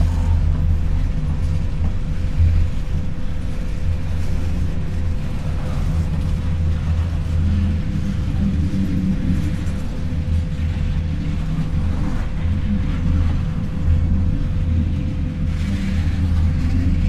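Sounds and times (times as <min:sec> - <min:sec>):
freight train rumbling past: 0:00.0 - 0:13.4.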